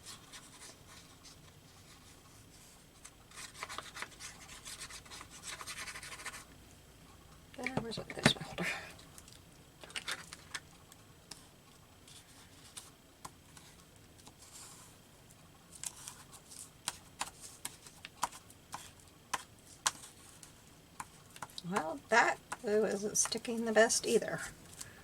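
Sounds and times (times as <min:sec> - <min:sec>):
soft paper rustling: 0:11.3 - 0:15.0, 0:15.7 - 0:21.8.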